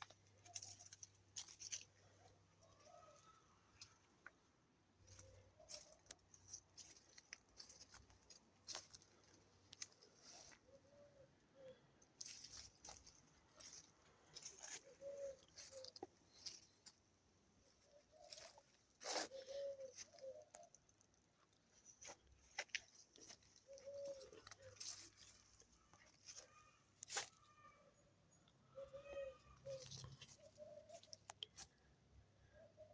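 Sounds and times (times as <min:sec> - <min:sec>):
footsteps over debris: 0:00.0 - 0:03.0, 0:05.0 - 0:10.7, 0:12.2 - 0:17.0, 0:21.5 - 0:27.4
faint bird cooing: 0:00.0 - 0:04.0, 0:05.0 - 0:16.8, 0:17.6 - 0:21.1, 0:21.8 - 0:32.9.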